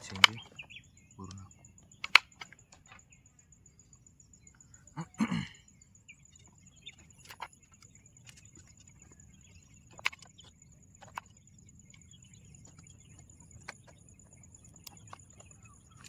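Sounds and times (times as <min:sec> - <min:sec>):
sharp clicks: 0:00.0 - 0:03.0, 0:06.8 - 0:16.0
insect trilling: 0:00.0 - 0:16.0.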